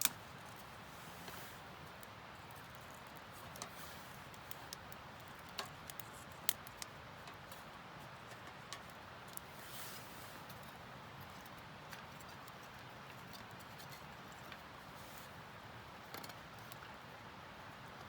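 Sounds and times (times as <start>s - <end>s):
low steady hiss: 0.0s - 18.0s
wood fire crackling and popping: 1.3s - 9.6s.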